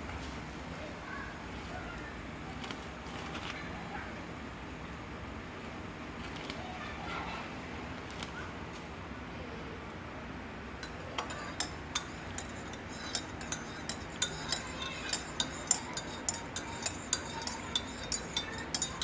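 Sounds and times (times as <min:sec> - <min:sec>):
spoon clinking in cup: 0:10.8 - 0:19.0.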